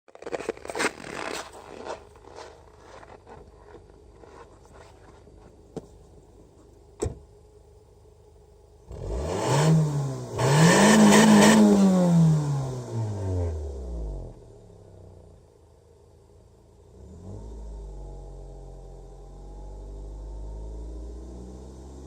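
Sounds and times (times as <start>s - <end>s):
car engine revving: 8.8s - 14.4s.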